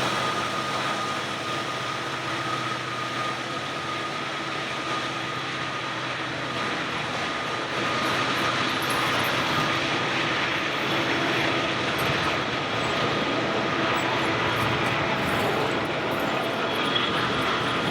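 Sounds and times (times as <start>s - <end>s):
freight train rumbling past: 9.6s - 17.9s.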